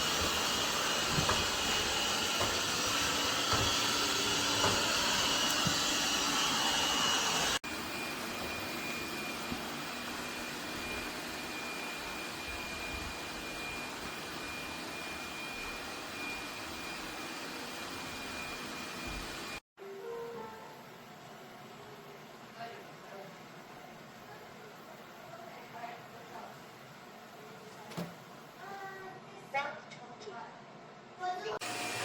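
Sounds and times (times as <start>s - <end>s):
robot vacuum whining: 0.0s - 19.6s.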